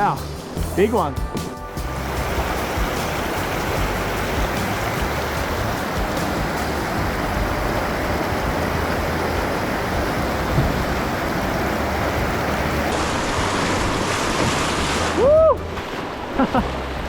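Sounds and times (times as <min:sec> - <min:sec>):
river rapid rushing: 0:00.0 - 0:17.0.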